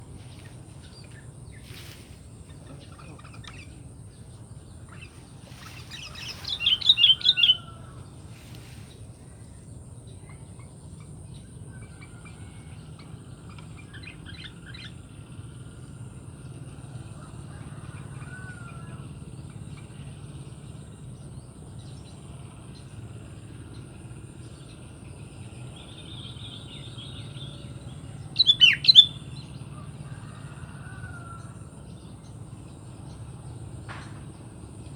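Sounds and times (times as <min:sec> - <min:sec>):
faint bird calls: 0:00.0 - 0:11.1, 0:25.8 - 0:32.3
low background rumble: 0:00.0 - 0:34.9.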